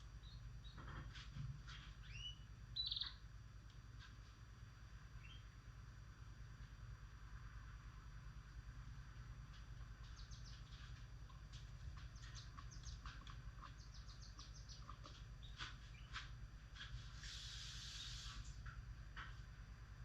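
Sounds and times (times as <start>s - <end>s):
birds chirping faintly: 0.0s - 3.4s, 5.0s - 5.7s, 9.0s - 18.8s
steady low hum: 0.0s - 20.0s.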